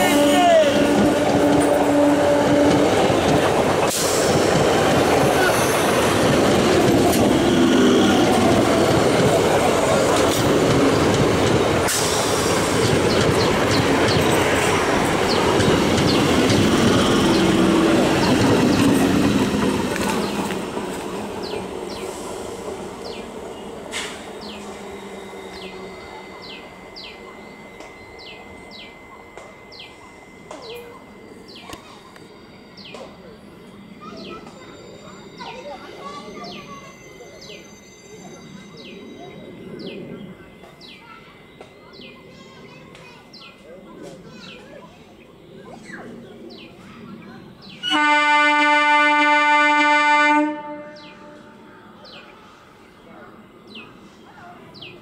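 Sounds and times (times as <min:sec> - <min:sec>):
train horn: 0:00.0 - 0:03.4, 0:47.8 - 0:51.7
train passing close by: 0:00.0 - 0:55.0.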